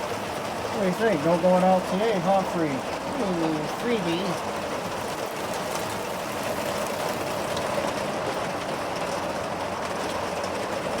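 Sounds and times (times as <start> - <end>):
hard rain pouring: 0.0 - 11.0.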